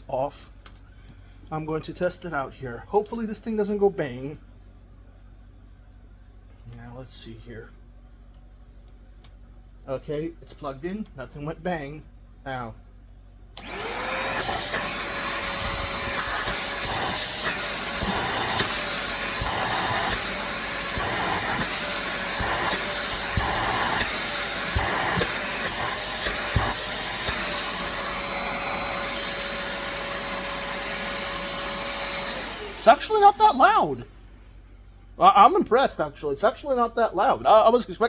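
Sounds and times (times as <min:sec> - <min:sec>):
vacuum cleaner motor whine: 0:13.6 - 0:35.8.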